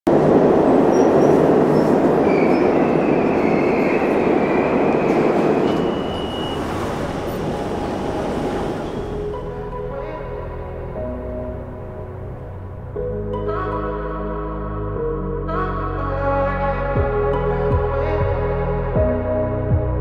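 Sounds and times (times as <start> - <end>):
underground train rushing past: 0.1 - 13.0
high train whine: 0.1 - 13.2.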